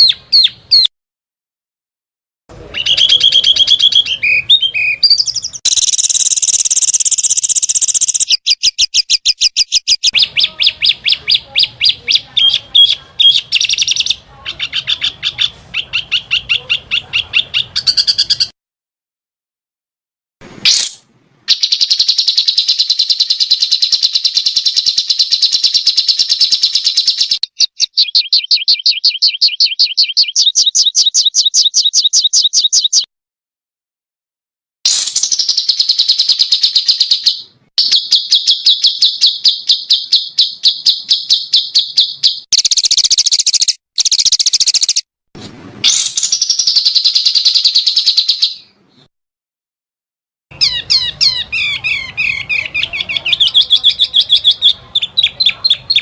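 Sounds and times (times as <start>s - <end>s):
songbird rapid high notes: 2.5s - 18.5s.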